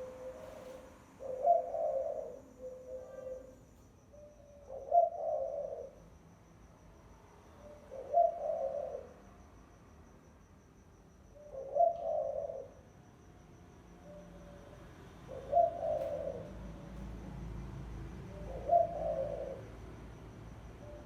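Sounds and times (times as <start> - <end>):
dove cooing: 0.0 - 6.0, 7.6 - 9.2, 11.4 - 12.8, 14.0 - 17.0, 18.0 - 19.9.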